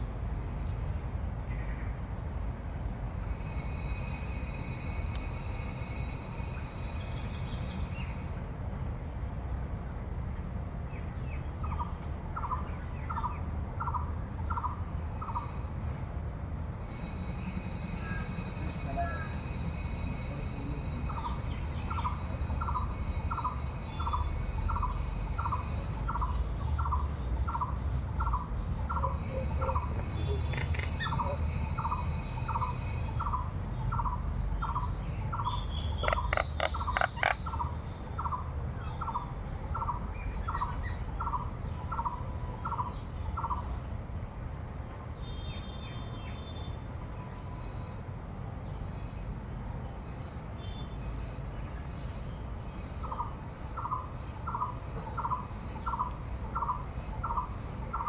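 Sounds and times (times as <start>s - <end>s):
insect trilling: 0.0s - 8.7s, 10.8s - 15.9s, 16.7s - 44.0s, 49.8s - 58.0s.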